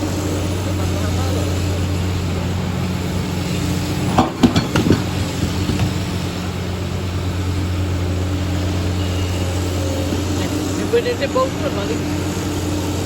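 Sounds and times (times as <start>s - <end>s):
engine running with low hum: 0.0s - 13.0s
short knocks: 4.1s - 6.3s.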